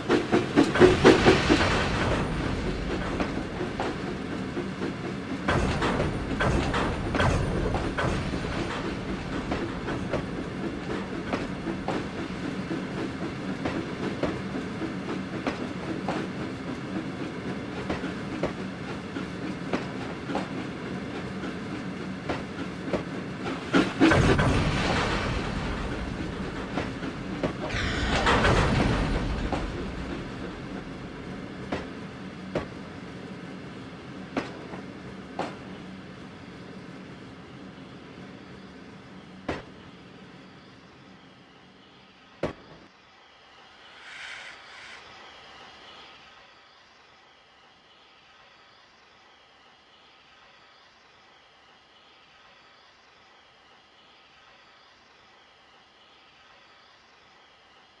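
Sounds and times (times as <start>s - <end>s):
train wheels clicking over rail joints: 0.0s - 46.2s.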